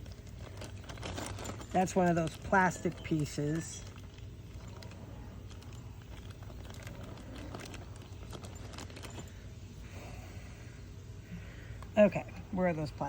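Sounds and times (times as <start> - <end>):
plastic parts clicking and rattling: 0.0 - 9.3.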